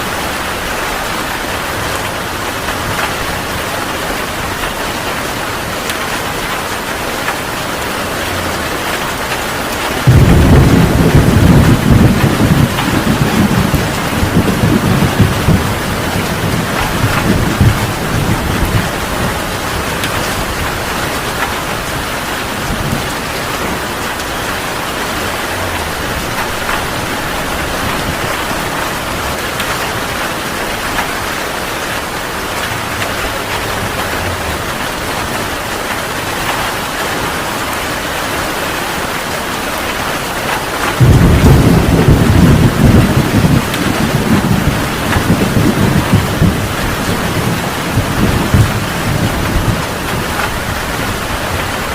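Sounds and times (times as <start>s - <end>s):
heavy rain hissing: 0.0s - 51.9s
thunder rolling: 8.0s - 37.0s, 40.8s - 51.9s.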